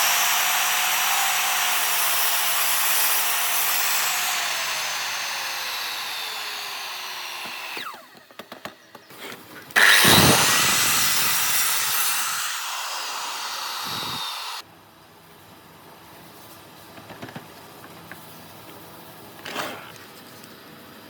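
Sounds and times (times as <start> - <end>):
woodworking power tool: 0.0 - 9.0, 9.8 - 14.6.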